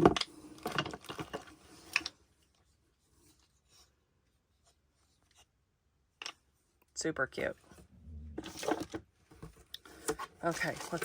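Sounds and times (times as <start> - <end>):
wooden piece scraping: 7.8 - 9.0.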